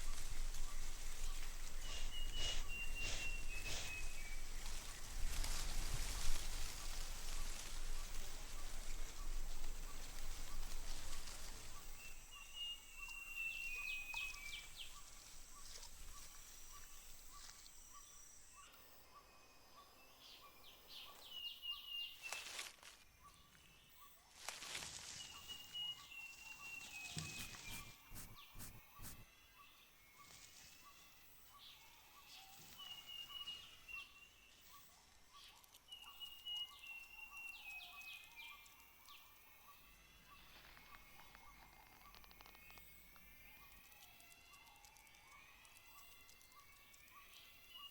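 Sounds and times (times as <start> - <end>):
noisy rustle: 0.0 - 12.3, 24.4 - 25.5, 26.8 - 29.3
birds calling: 1.4 - 4.7, 27.0 - 29.2.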